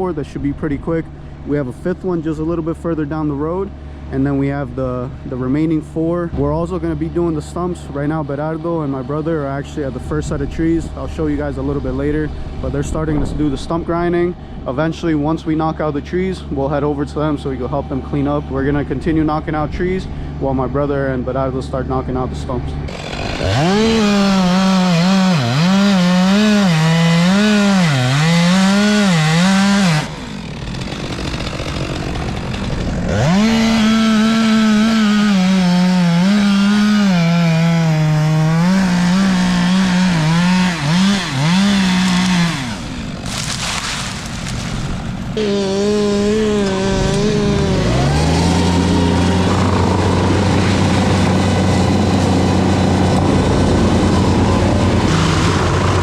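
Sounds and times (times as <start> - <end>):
larger engine running steadily: 0.0 - 23.7, 44.5 - 56.0
chainsaw cutting at high revs: 22.8 - 56.0.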